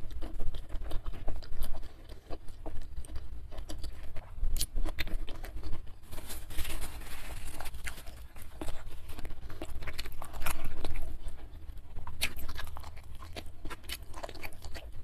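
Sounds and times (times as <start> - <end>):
chewing with mouth clicks: 0.0 - 6.1, 7.3 - 15.0
paper tissue rustling: 6.0 - 9.2.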